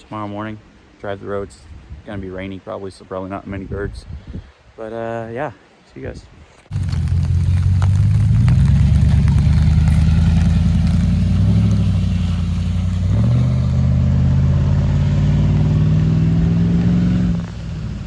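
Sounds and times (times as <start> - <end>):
off-road vehicle engine running: 6.7 - 18.0.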